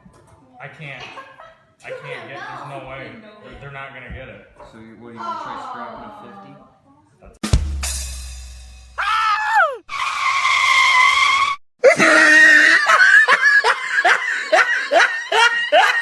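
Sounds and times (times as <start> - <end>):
high-pitched screaming: 9.0 - 12.9.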